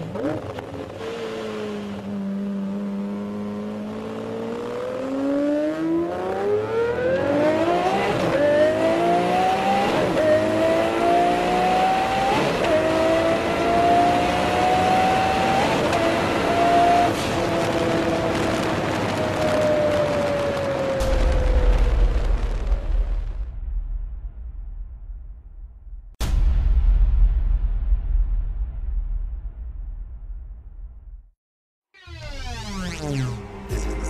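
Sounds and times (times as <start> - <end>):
car engine accelerating: 0.0 - 21.0, 32.1 - 34.0.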